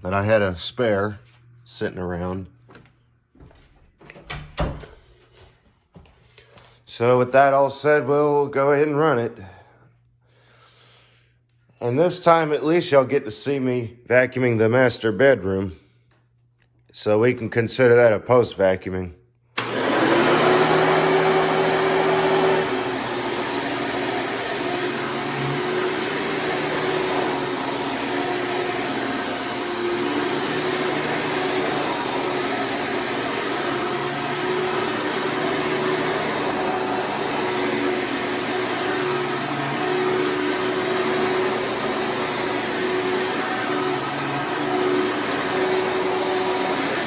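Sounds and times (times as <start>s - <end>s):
vacuum cleaner running: 19.6s - 47.0s.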